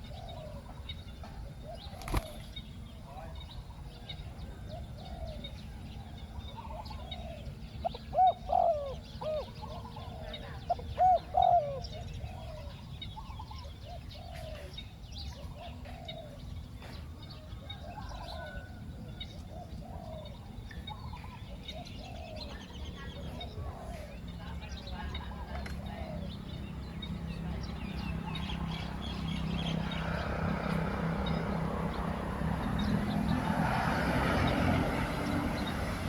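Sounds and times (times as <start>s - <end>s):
doves cooing: 0.0s - 2.5s, 6.5s - 14.8s, 17.6s - 26.7s.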